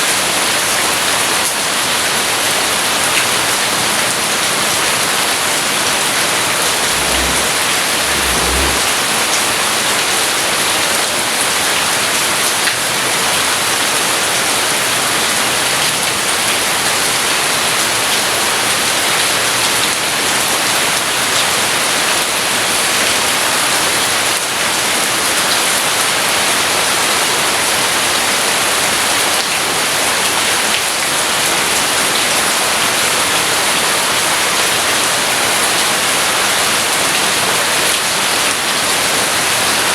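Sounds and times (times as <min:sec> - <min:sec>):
heavy rain hissing: 0:06.2 - 0:09.2
low rumble: 0:06.7 - 0:09.0.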